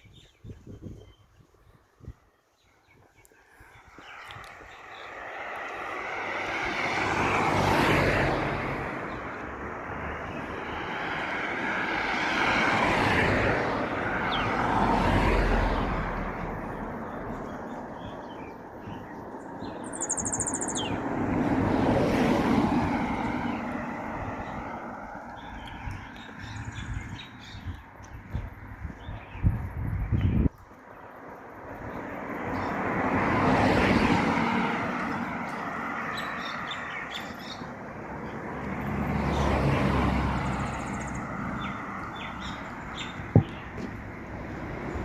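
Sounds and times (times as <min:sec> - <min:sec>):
vehicles passing: 0:03.4 - 0:45.0
bird chirping: 0:16.7 - 0:21.0.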